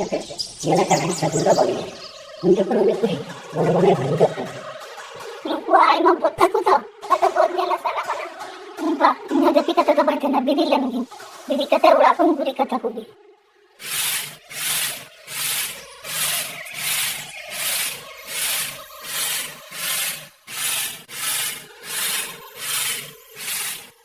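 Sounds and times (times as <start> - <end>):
rhythmic scrubbing strokes: 13.8 - 24.0.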